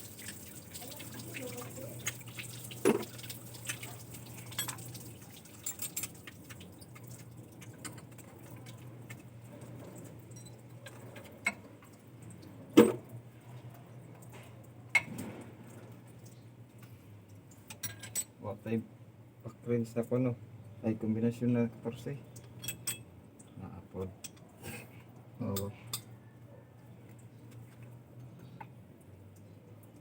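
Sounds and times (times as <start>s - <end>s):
metal tools clinking: 17.7s - 18.4s.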